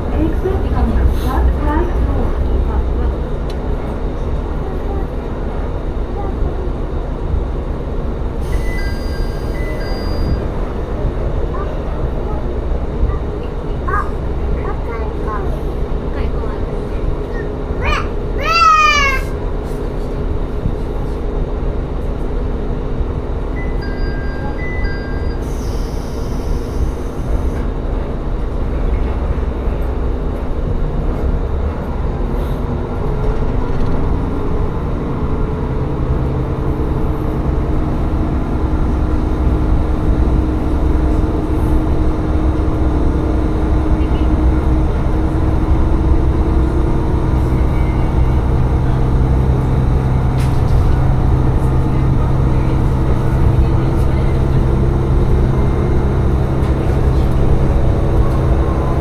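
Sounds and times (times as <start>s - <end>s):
diesel train engine: 0.0s - 59.0s.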